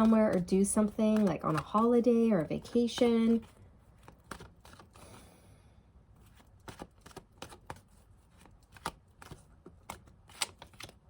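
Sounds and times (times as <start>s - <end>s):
cards being shuffled: 0.0s - 5.2s, 6.2s - 11.0s.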